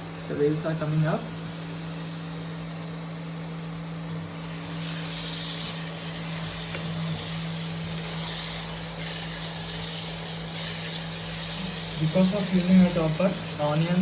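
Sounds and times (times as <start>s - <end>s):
cooktop hum: 0.0s - 14.0s
onions sizzling in oil: 4.4s - 14.0s.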